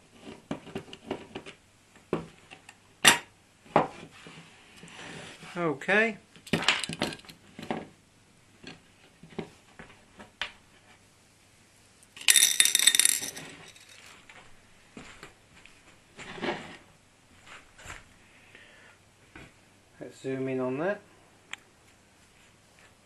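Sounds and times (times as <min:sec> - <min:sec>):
metal parts clinking on workbench: 0:12.2 - 0:14.1.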